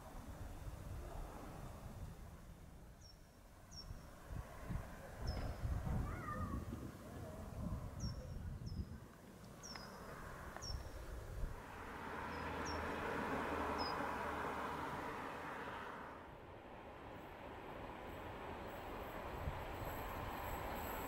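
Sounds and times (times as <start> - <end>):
wind rumbling on microphone: 0.0 - 11.6.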